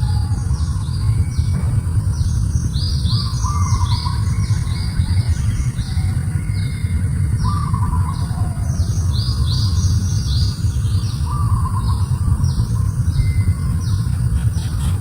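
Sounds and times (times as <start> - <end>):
birds chirping: 0.0 - 15.0
steady low rumble: 0.0 - 15.0
buzzy trilling bird call: 11.2 - 15.0.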